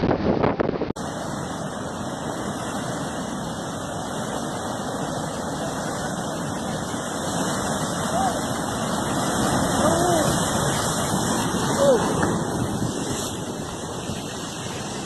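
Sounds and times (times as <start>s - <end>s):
rushing floodwater roar: 0.0s - 15.0s
wind buffeting microphone: 0.0s - 15.0s.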